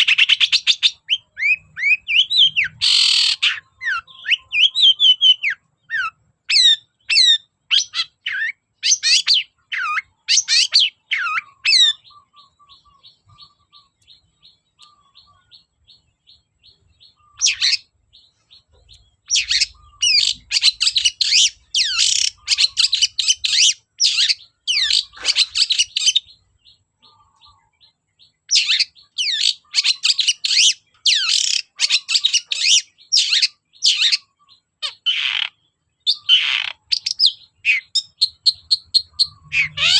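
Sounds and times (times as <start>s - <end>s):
bird ticking: 6.8s - 26.8s.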